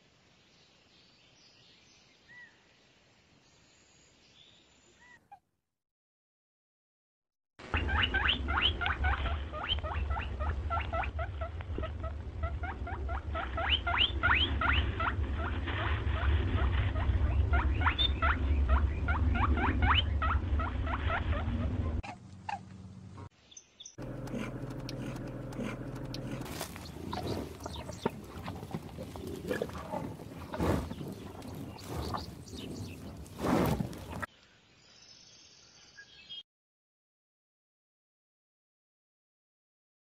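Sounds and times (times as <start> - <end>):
low rumble: 9.2 - 22.0, 24.0 - 34.3
hare squeaking: 24.0 - 34.2.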